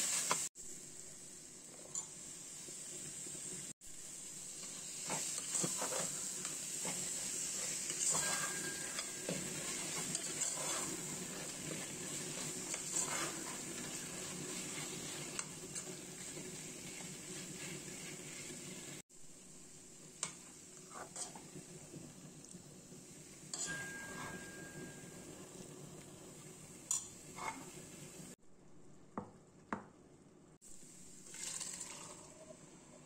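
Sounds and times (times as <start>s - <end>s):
food sizzling in a pot: 0.0s - 28.4s, 30.6s - 33.0s
metal spoon scraping a pot: 7.8s - 11.8s, 12.4s - 13.9s.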